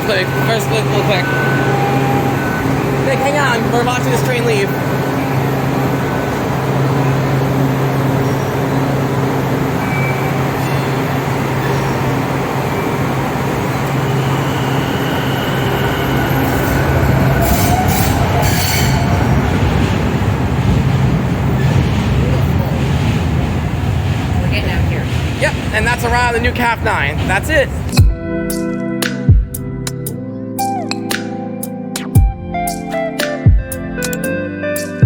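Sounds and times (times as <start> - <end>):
train wheels squealing on rails: 0.0 - 20.8
train motor hum: 0.0 - 28.0.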